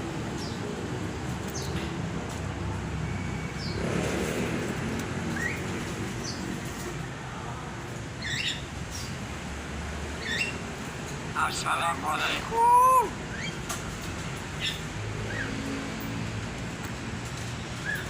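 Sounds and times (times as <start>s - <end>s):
birds chirping: 8.2s - 9.2s, 11.3s - 13.6s.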